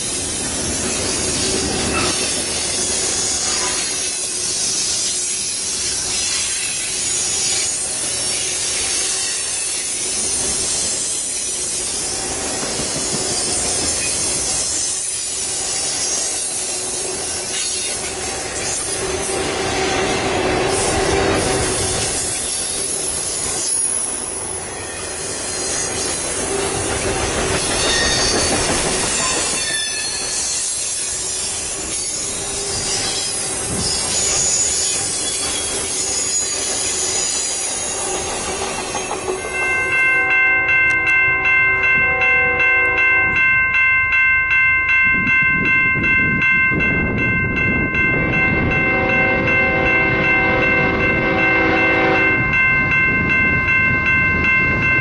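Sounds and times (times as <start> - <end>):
train wheel squeal: 0.0 - 40.3
train rolling past: 0.0 - 55.0
pulsing ringing bell: 34.2 - 55.0
train horn: 40.2 - 43.4, 48.6 - 52.6.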